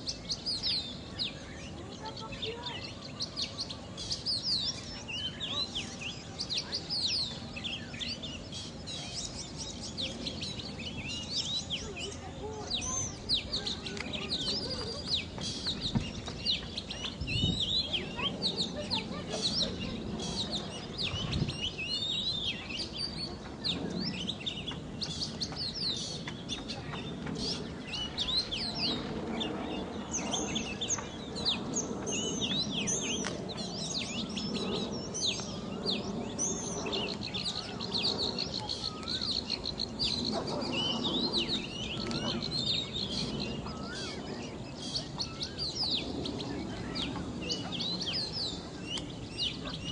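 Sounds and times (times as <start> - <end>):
small birds chirping and twittering: 0.0 - 49.9
steady high bird trill: 0.0 - 49.9.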